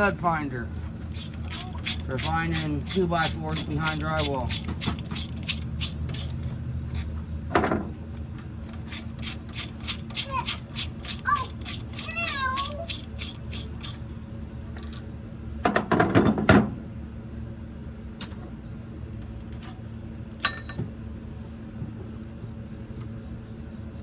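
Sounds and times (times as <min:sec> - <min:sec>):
steady low hum: 0:00.0 - 0:15.7.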